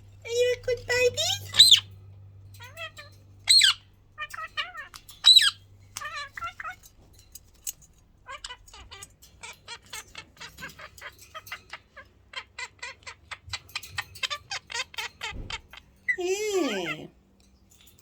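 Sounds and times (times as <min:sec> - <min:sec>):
parakeet chattering call: 0:00.2 - 0:02.0, 0:02.6 - 0:07.0, 0:07.7 - 0:17.1
parakeet squawk: 0:00.9 - 0:01.9, 0:02.6 - 0:06.9, 0:08.2 - 0:17.1.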